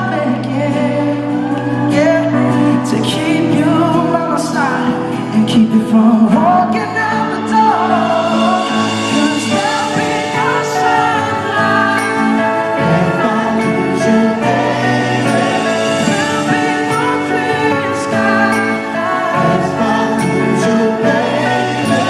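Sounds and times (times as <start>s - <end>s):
live band playing pop ballad: 0.0s - 22.0s
person singing: 0.0s - 22.0s.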